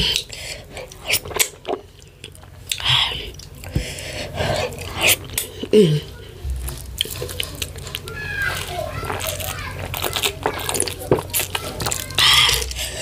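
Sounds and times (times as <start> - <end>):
person chewing wetly: 0.0 - 13.0.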